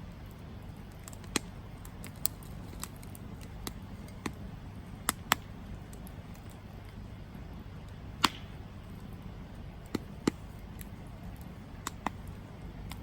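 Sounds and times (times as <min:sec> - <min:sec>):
campfire crackling and popping: 0:00.0 - 0:13.0
low steady rumble: 0:00.0 - 0:13.0.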